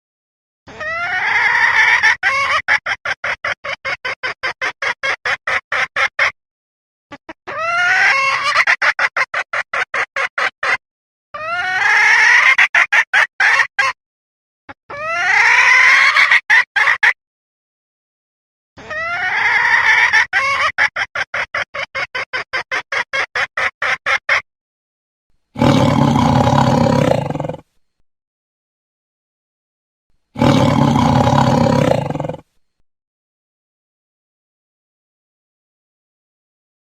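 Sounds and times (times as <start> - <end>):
animal calls repeated notes: 14.9 - 17.1, 18.8 - 24.4, 25.6 - 27.6, 30.4 - 32.5.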